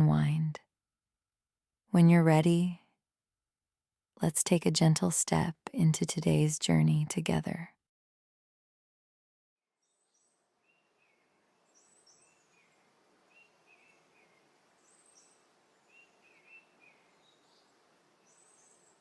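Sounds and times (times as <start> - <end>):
songbird chirping: 9.8 - 19.0
faint hiss: 10.6 - 19.0.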